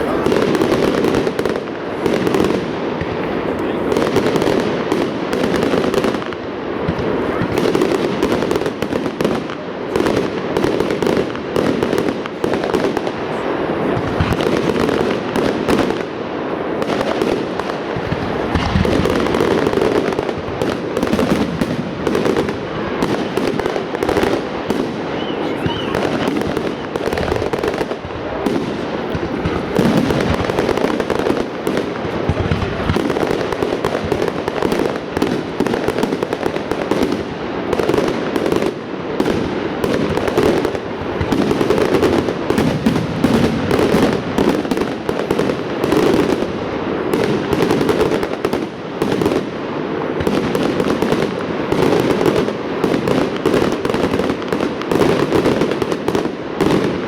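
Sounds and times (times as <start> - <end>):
fireworks bangs and crackle: 0.0 - 57.0.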